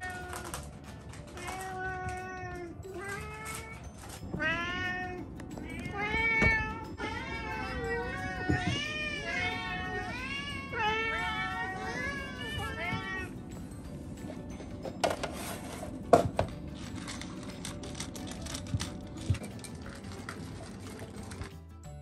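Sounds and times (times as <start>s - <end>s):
cats meowing: 0.0s - 0.6s, 1.2s - 13.5s.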